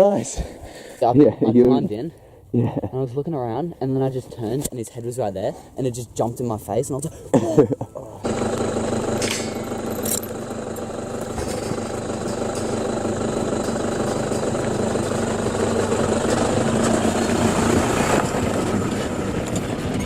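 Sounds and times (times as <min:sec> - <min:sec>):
car engine and road noise: 0:08.2 - 0:20.0.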